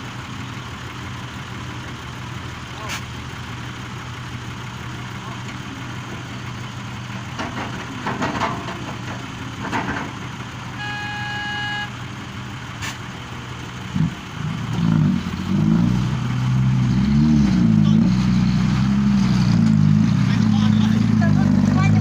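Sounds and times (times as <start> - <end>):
heavy diesel machinery running: 0.0 - 22.0
electronic beep: 10.8 - 11.9.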